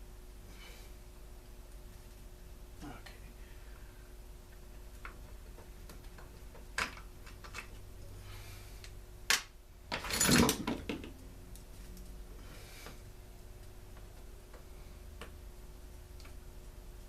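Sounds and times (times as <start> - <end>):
parts clattering and rustling: 5.0 - 7.9, 9.9 - 11.2.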